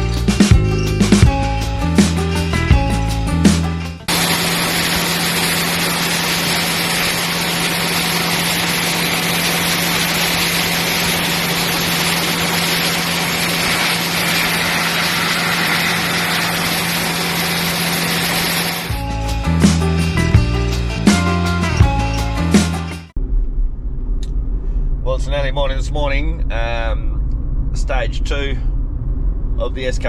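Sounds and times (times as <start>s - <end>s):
motor running with hum and hiss: 4.1s - 19.0s.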